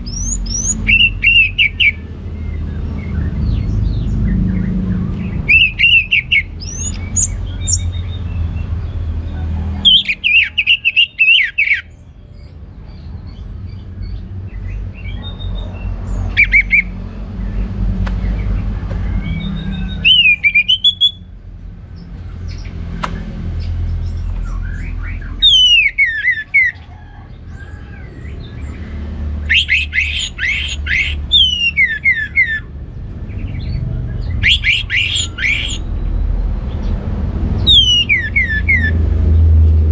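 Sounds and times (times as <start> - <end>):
thrush singing trills and whistles: 0.0 - 8.6, 9.8 - 12.6, 14.5 - 21.4, 24.0 - 27.0, 27.6 - 36.3, 37.6 - 39.0.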